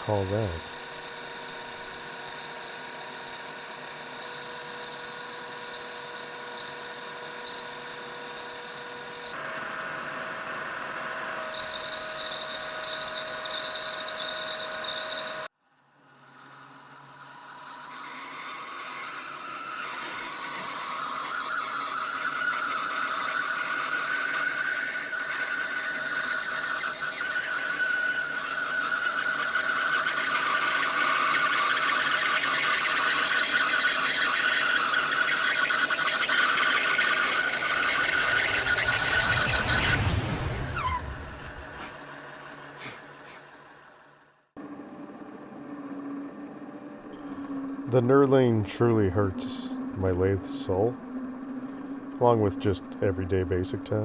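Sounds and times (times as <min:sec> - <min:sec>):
metal lathe cutting brass: 0:00.0 - 0:15.5, 0:16.4 - 0:40.1.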